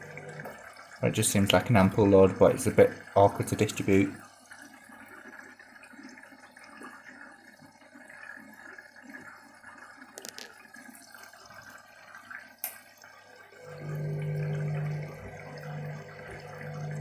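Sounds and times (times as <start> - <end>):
low steady hum: 0.0 - 1.9, 13.6 - 17.0
water trickling into washing machine: 0.0 - 17.0.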